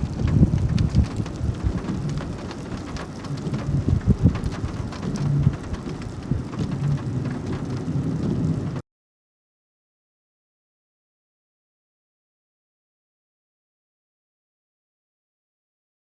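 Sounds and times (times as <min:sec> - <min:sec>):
heavy rain falling: 0:00.0 - 0:08.8
raindrops ticking on a surface: 0:00.0 - 0:08.8
steady low rumble: 0:00.0 - 0:08.8.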